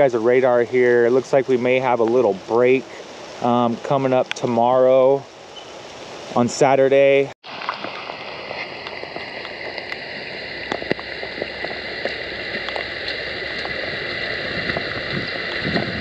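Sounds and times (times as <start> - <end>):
heavy rain: 5.8 - 16.0.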